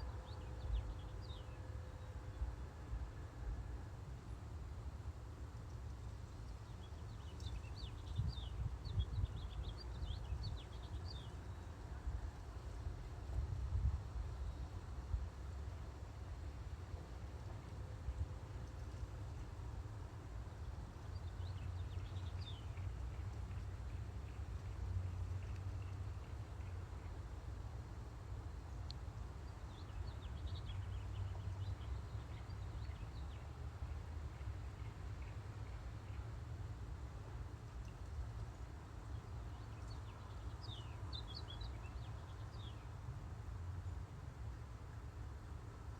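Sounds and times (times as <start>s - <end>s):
songbird chirping: 28.5s - 33.6s, 37.2s - 43.0s.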